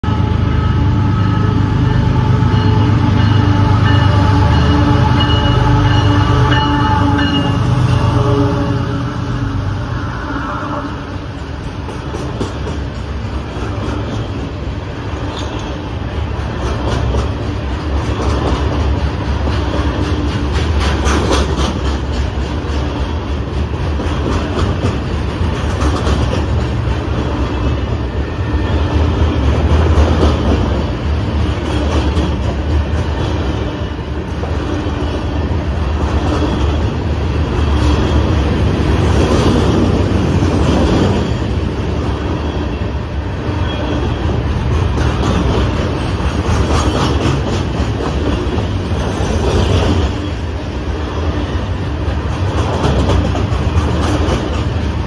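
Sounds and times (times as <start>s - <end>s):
hopper cars rumbling: 0.0s - 55.0s
wheels clicking over rail joints: 15.2s - 27.3s, 52.1s - 55.0s.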